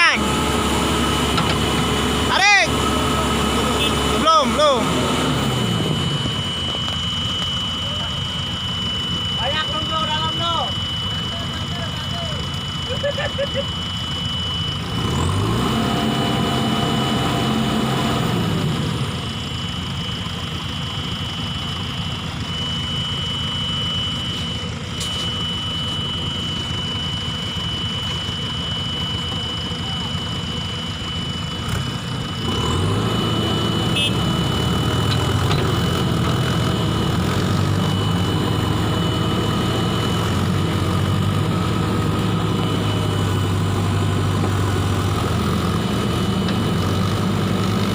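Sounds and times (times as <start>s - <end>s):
heavy vehicle engine revving: 0.0s - 10.5s, 13.9s - 19.7s, 31.4s - 47.9s
steady high whine: 0.0s - 47.9s.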